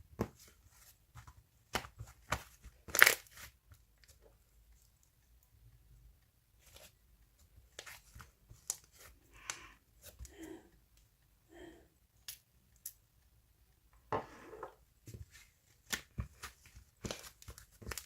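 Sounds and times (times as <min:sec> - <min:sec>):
crinkling rustling: 0:15.0 - 0:18.0.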